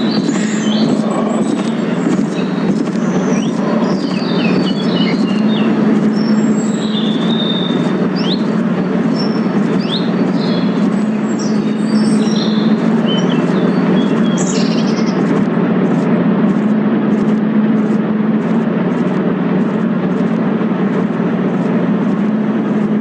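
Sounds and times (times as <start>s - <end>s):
birds chirping: 0.0s - 18.6s
low humming drone: 0.0s - 23.0s.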